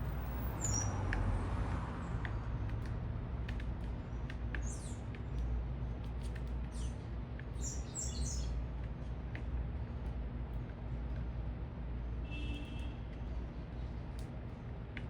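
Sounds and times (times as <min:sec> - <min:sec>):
low city traffic rumble: 0:00.0 - 0:15.0
small birds chirping: 0:00.2 - 0:01.1, 0:02.1 - 0:09.6.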